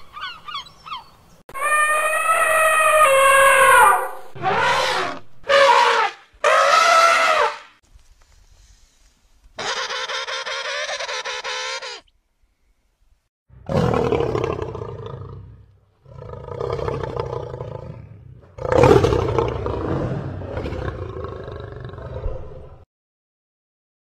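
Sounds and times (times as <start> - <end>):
high-pitched animal call: 0.0 - 7.6, 9.6 - 12.1
tiger roaring: 13.6 - 22.8.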